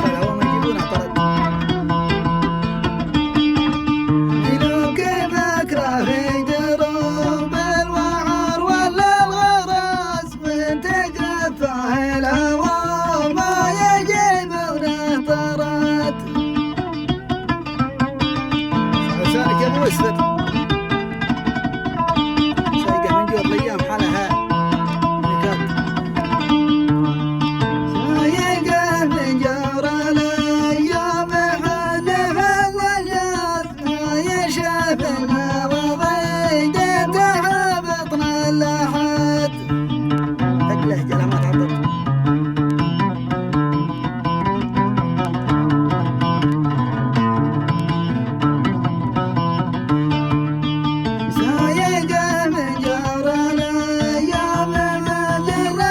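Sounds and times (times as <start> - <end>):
man singing melismatic melody: 0.0 - 2.5, 4.3 - 16.4, 19.0 - 20.6, 22.6 - 26.4, 27.9 - 42.2, 51.2 - 55.9
plucked string accompaniment: 0.0 - 55.9.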